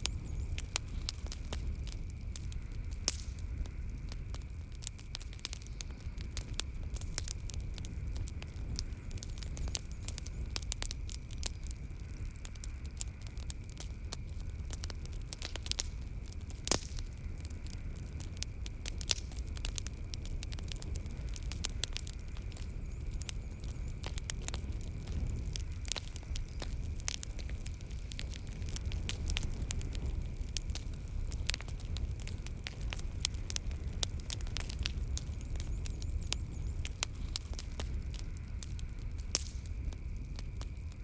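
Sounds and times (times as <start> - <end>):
wood fire crackling and popping: 0.0 - 41.0.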